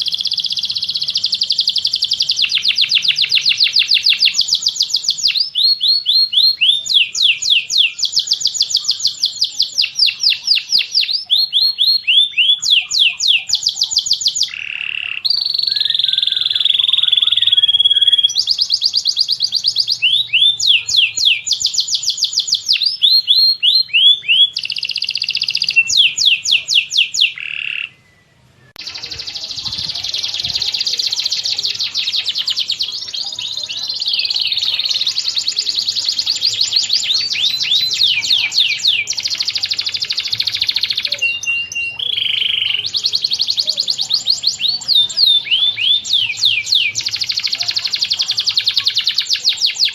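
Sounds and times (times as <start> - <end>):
songbird trills and whistles: 0.0 - 49.9.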